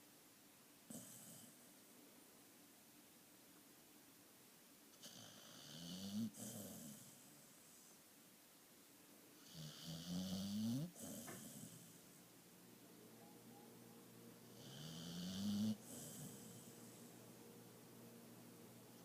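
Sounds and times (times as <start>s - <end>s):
dog snoring: 0.9s - 1.6s, 5.0s - 7.9s, 9.4s - 12.2s, 14.5s - 17.1s.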